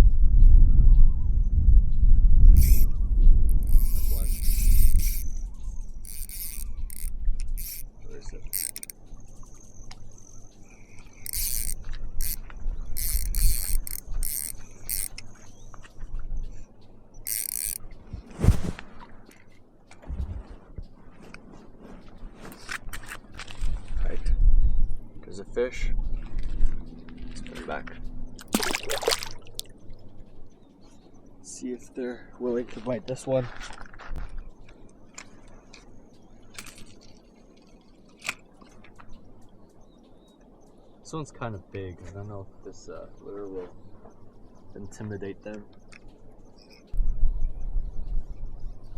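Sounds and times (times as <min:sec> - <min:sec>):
fishing reel whirring: 0:02.5 - 0:09.0, 0:10.7 - 0:15.2, 0:17.3 - 0:17.9
water splashing and dripping: 0:28.4 - 0:29.8.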